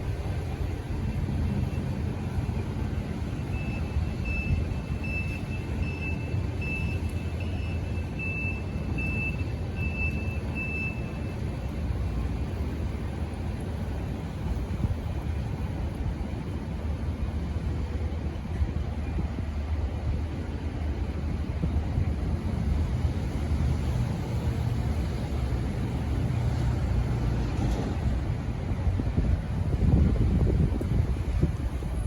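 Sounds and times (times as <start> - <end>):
distant engines: 0.0 - 32.0
wind: 0.0 - 32.0.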